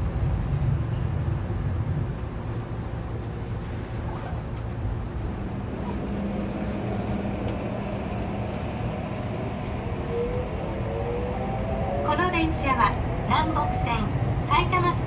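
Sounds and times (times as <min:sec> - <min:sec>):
train wheels rumbling on rail: 0:00.0 - 0:15.0
train motor whine: 0:02.2 - 0:13.1.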